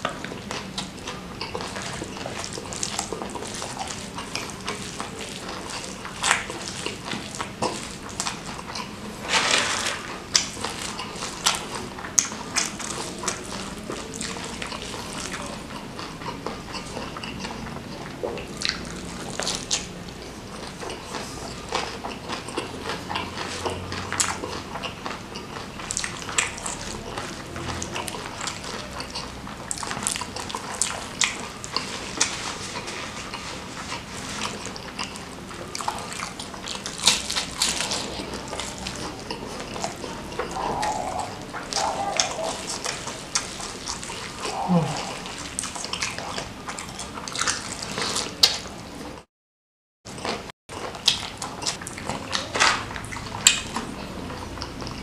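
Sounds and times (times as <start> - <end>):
chewing and crunching food: 0.0 - 49.3, 50.1 - 55.0
wet sticky mouth sounds: 10.1 - 48.7.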